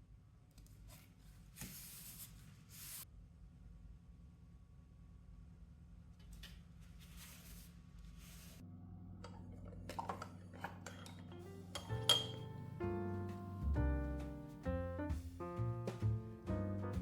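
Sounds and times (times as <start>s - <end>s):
soft rustles: 6.7s - 8.6s
soft background music: 11.1s - 17.0s.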